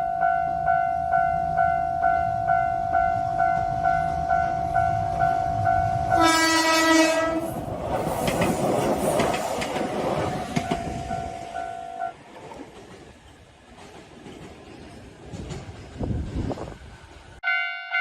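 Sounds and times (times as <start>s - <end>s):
train rushing on rails: 0.0s - 18.0s
train horn blast: 6.0s - 7.6s.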